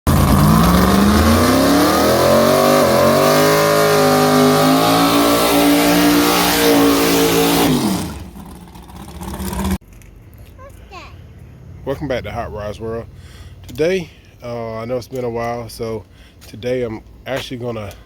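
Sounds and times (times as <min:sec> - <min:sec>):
race car engine accelerating: 0:00.1 - 0:09.8.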